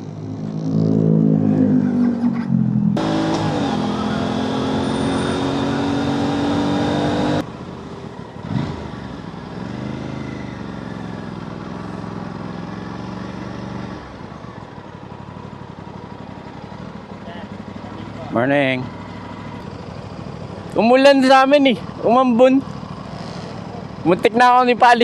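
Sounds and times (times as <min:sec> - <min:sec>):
quieter engine rising and falling: 0:00.0 - 0:07.5
motorcycle engine running: 0:07.4 - 0:24.9.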